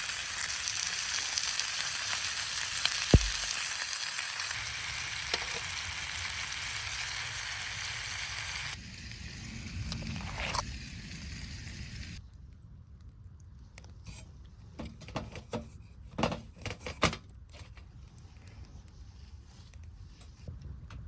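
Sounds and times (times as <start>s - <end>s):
food sizzling in a pan: 0.0s - 12.2s.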